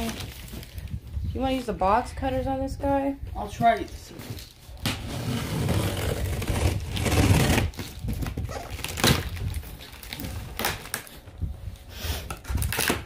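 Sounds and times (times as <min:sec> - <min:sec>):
cardboard scraping and rustling: 0:04.1 - 0:10.6.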